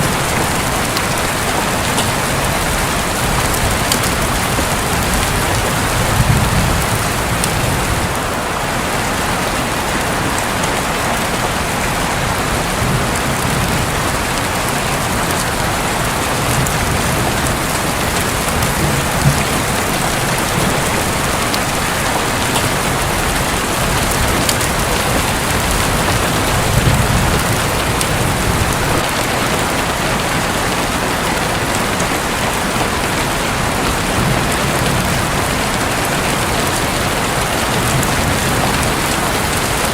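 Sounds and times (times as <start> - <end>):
low thunder rumbling: 0.0 - 8.4, 11.6 - 29.2
heavy rain drumming on a roof: 0.0 - 39.9.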